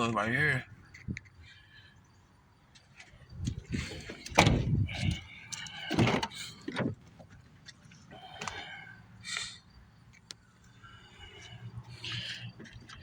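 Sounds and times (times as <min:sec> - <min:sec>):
truck doors knocking and clunking: 0:03.4 - 0:07.4.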